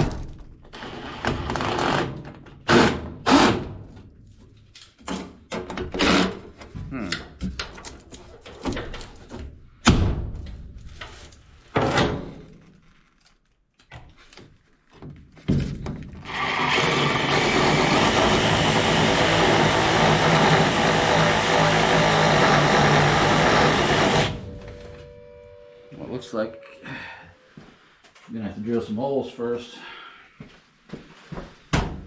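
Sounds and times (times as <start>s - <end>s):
knocks and clunks of parts: 4.4s - 12.7s, 13.8s - 16.2s
drill spinning a screw: 16.2s - 24.4s.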